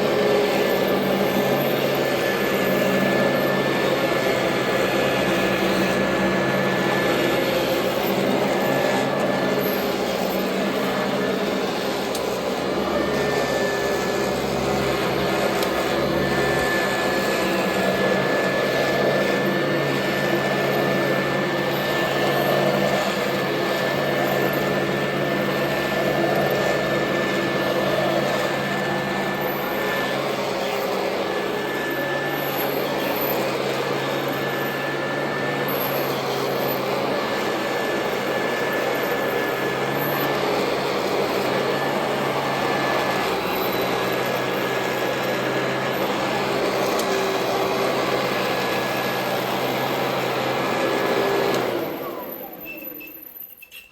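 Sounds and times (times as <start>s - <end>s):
upright vacuum cleaner running: 0.0s - 53.4s.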